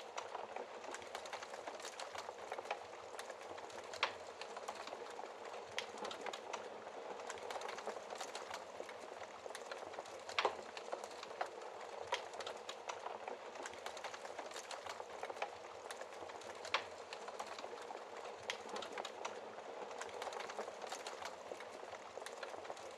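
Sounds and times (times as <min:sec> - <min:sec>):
wood fire crackling and popping: 0:00.0 - 0:22.9.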